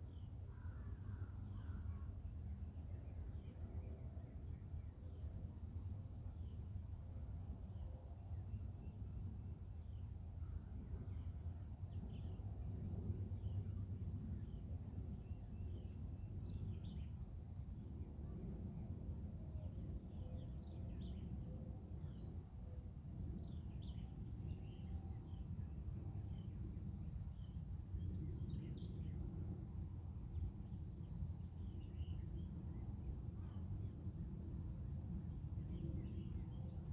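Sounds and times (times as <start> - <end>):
songbirds chirping: 11.9 - 36.9.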